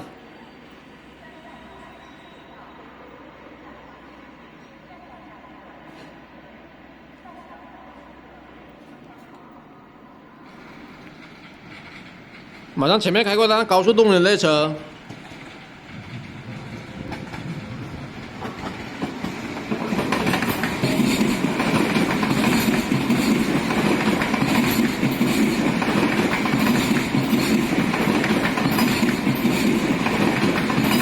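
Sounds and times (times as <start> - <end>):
train rumbling by: 0.0 - 31.0
wheels clacking over rail joints: 10.6 - 13.2, 14.9 - 31.0.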